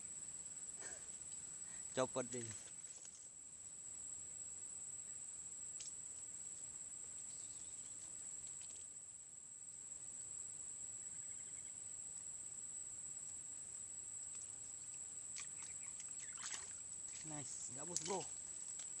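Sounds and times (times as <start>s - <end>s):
insects droning: 0.0s - 19.0s
bird chirp: 7.3s - 8.1s, 11.0s - 11.8s, 14.8s - 18.3s.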